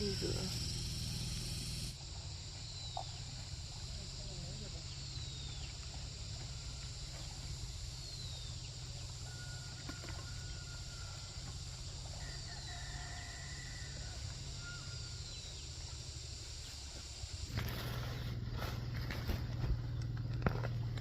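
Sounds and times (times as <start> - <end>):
high hiss: 0.0 - 2.0
low hum: 0.0 - 12.2
rooster crowing: 9.2 - 15.4.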